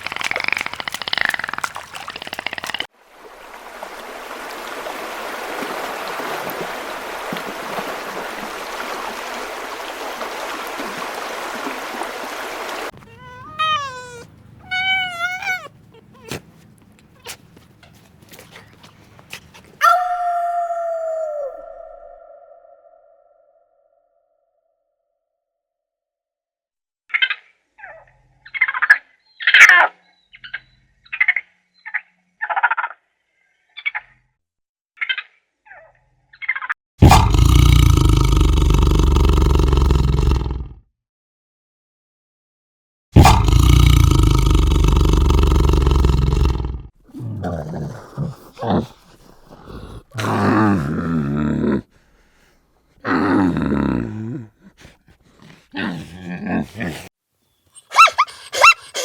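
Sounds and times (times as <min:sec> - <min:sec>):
rasping animal calls: 0:00.0 - 0:02.9, 0:12.9 - 0:23.0, 0:54.5 - 0:57.1, 0:57.8 - 0:59.0
large animal roaring: 0:37.0 - 0:40.8, 0:43.2 - 0:51.9, 0:53.0 - 0:54.8, 0:55.4 - 0:57.1.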